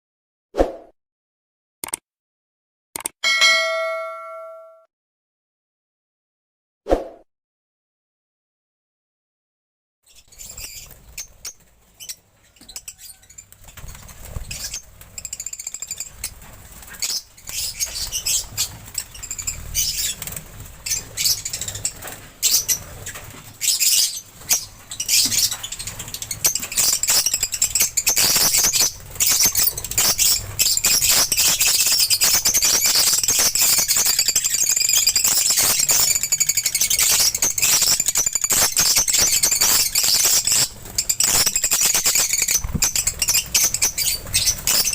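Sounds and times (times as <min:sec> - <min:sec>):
birds chirping and chattering: 0:10.1 - 0:44.9.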